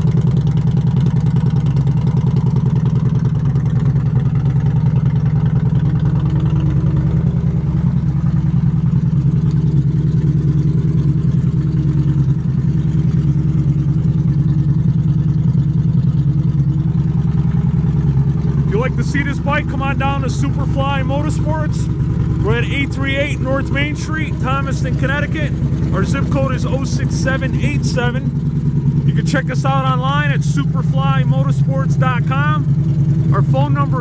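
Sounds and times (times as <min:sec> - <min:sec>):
motorcycle engine idling: 0:00.0 - 0:34.0.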